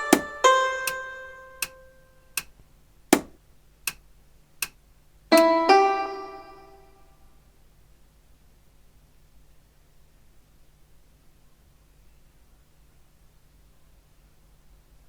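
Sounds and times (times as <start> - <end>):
keyboard melody notes: 0.0 - 2.0, 5.3 - 7.0
metronome ticks: 0.0 - 2.6, 3.2 - 4.0, 4.6 - 5.6.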